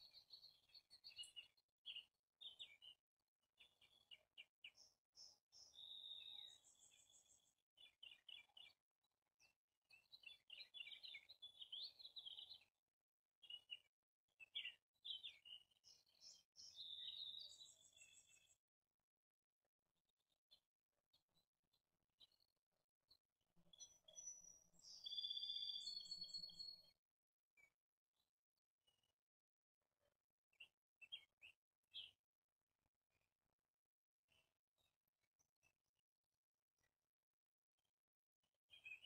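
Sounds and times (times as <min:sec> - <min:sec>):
faint songbird chirping: 0:00.0 - 0:12.8, 0:13.4 - 0:18.6, 0:22.2 - 0:22.5, 0:23.1 - 0:27.0, 0:30.5 - 0:32.2, 0:38.7 - 0:39.0.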